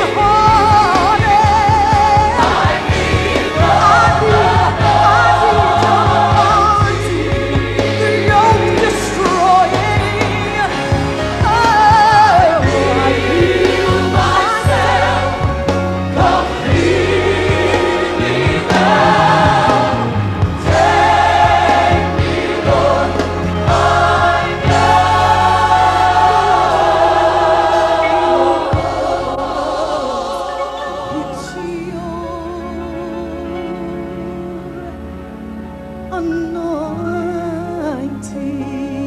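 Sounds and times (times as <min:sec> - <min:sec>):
gospel choir singing: 0:00.0 - 0:35.0
instrumental backing: 0:00.0 - 0:39.0.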